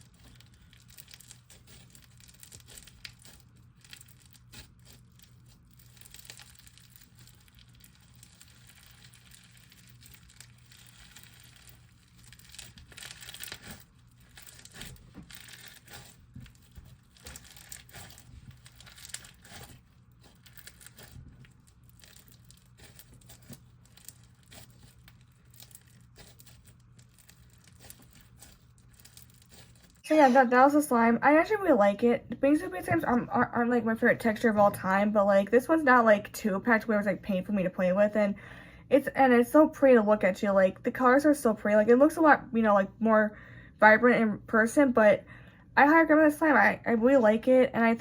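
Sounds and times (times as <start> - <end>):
slime crackling and crunching: 0.0 - 30.6.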